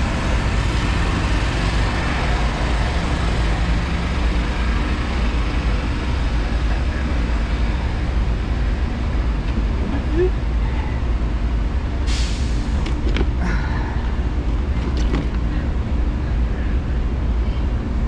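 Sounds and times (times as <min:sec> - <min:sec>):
train idling rumble: 0:00.0 - 0:18.0
hiss: 0:12.1 - 0:12.8.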